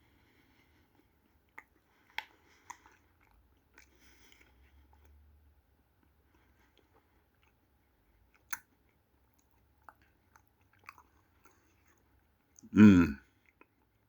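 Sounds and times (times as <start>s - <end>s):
wet mouth smacks while eating: 1.5s - 5.1s, 8.3s - 12.0s.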